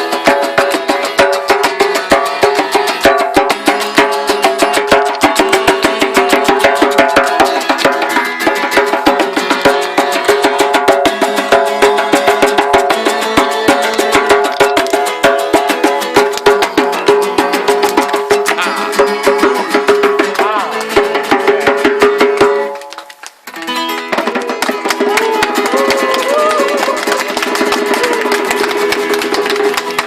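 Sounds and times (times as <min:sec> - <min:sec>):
guitar strummed fast: 0:00.0 - 0:22.6
djembe beat: 0:00.0 - 0:22.9, 0:23.7 - 0:30.0
person singing: 0:18.4 - 0:22.0.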